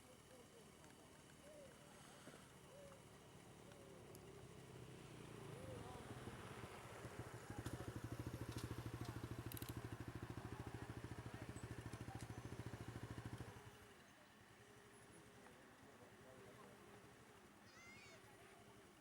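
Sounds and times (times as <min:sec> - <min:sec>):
vehicle engine idling: 0:00.0 - 0:13.8.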